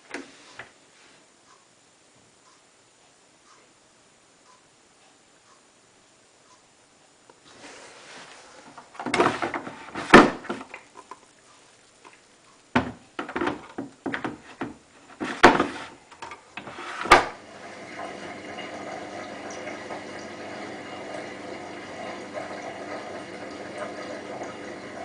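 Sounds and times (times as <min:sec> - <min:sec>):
washing machine filling with water: 0:08.9 - 0:11.0, 0:12.8 - 0:16.0, 0:16.6 - 0:25.0
sharp knocks and clatters: 0:12.8 - 0:16.4.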